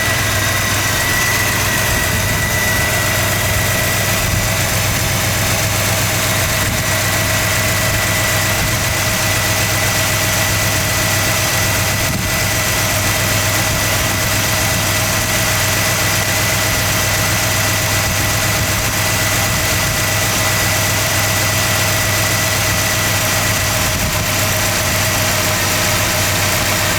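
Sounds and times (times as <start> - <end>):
car engine idling: 0.0 - 26.9.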